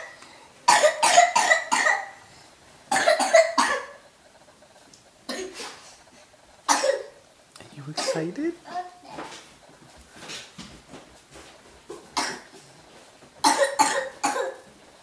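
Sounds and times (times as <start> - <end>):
person coughing: 0.7 - 2.2, 2.9 - 4.0, 5.3 - 5.7, 6.7 - 7.2, 8.0 - 8.4, 12.2 - 12.5, 13.4 - 14.6.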